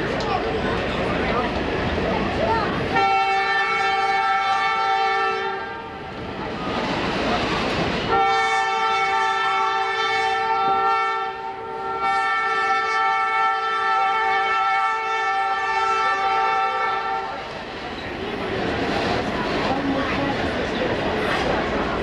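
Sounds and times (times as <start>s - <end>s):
train rushing noise: 0.0s - 22.0s
locomotive air horn blasts: 2.9s - 6.0s, 8.1s - 17.4s.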